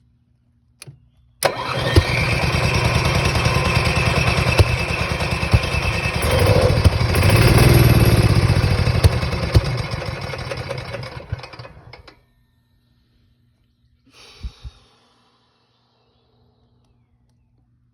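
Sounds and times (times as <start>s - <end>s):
generator engine cranking: 1.4s - 12.2s.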